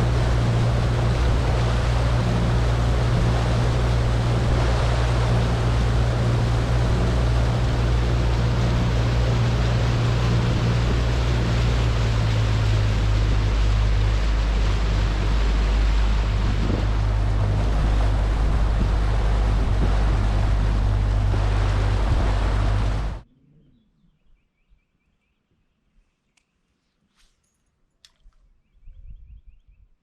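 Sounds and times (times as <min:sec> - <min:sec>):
boat motor running: 0:00.0 - 0:23.2
water noise: 0:00.0 - 0:23.3
wind: 0:00.0 - 0:30.0.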